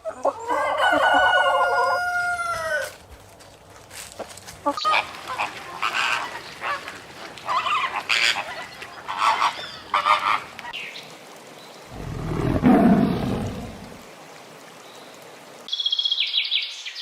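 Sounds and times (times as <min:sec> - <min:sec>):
fowl short repeated calls: 0:04.7 - 0:10.5.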